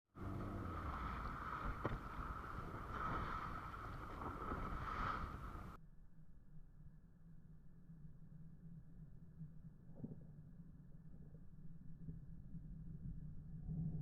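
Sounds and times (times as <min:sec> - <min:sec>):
wind rumbling on microphone: 0:00.1 - 0:05.8, 0:09.9 - 0:14.0
faint low hum: 0:00.2 - 0:14.0.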